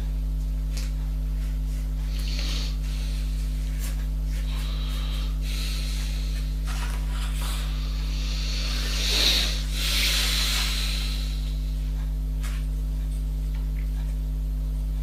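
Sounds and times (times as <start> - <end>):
low electrical hum: 0.0 - 15.0
hand scraping a surface: 1.4 - 11.4.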